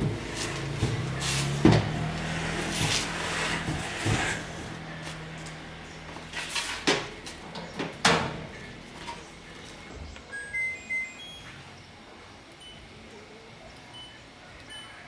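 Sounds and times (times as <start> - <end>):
sharp knocks and clunks: 0.0 - 4.8.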